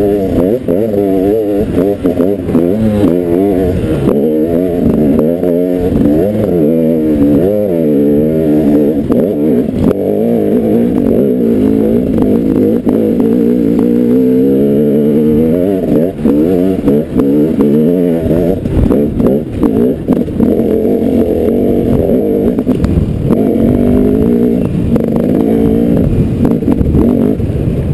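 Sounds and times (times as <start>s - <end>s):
dirt bike engine revving: 0.0s - 27.9s
sharp clicks and knocks: 21.9s - 23.4s.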